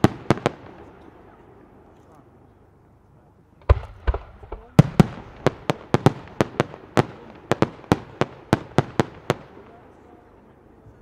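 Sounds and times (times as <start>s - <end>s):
fireworks sharp bangs: 0.0s - 1.4s, 3.6s - 10.0s
fireworks deep thumps: 3.6s - 8.7s.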